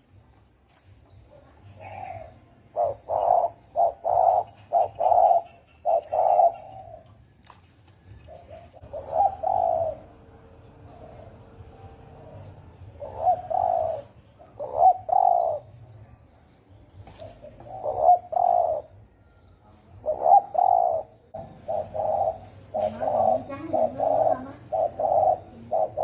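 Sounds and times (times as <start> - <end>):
doves cooing: 1.1 - 26.0.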